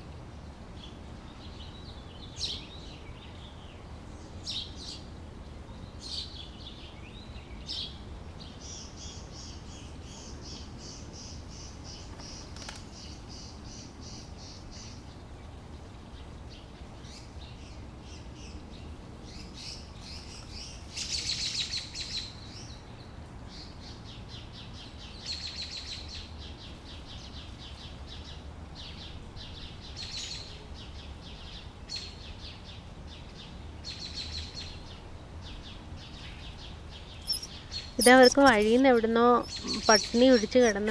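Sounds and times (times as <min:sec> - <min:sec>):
birds chirping and trilling: 0:36.2 - 0:40.9.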